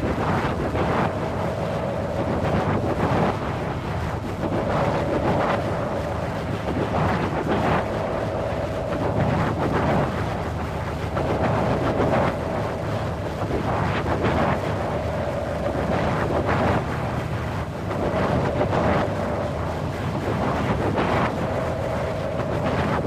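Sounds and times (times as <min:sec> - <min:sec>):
wind blowing in gusts: 0:00.0 - 0:23.0.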